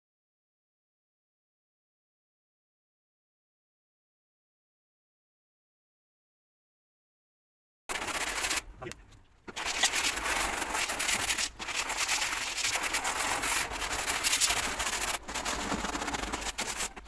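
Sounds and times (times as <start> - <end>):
rough rubbing against a surface: 7.9 - 17.0.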